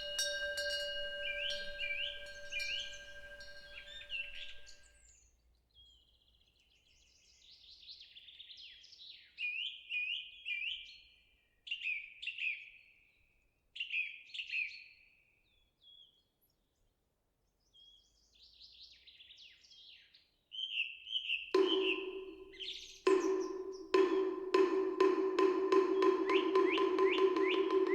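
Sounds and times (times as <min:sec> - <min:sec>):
wooden block struck: 0:00.0 - 0:04.8, 0:21.6 - 0:27.9
small birds chirping: 0:00.0 - 0:04.9, 0:21.1 - 0:24.7, 0:25.4 - 0:27.9
wind chime ringing: 0:00.0 - 0:04.9, 0:21.6 - 0:27.9.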